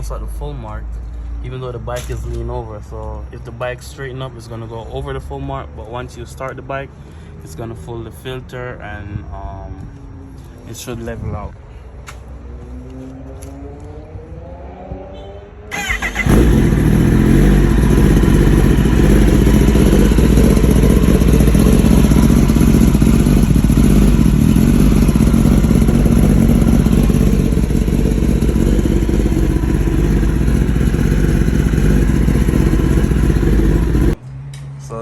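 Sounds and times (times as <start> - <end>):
motorcycle engine starting and running: 12.6 - 34.6.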